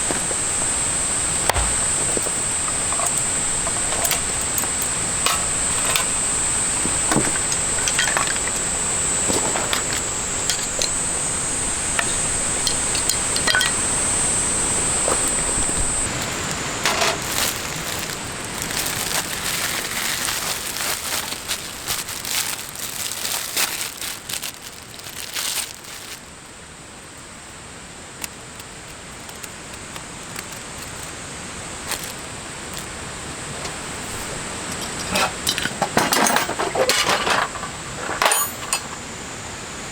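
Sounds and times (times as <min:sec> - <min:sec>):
small objects clinking: 0:16.1 - 0:26.2.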